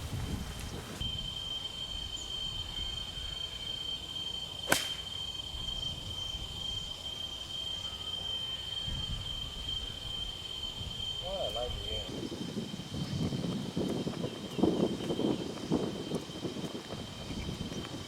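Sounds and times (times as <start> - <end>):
high-pitched insect drone: 1.0 - 18.0
golf club striking ball: 4.7 - 5.1.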